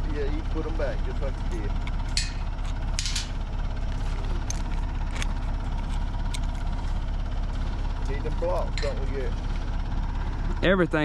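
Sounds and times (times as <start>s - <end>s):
backhoe engine idling: 0.0s - 11.0s.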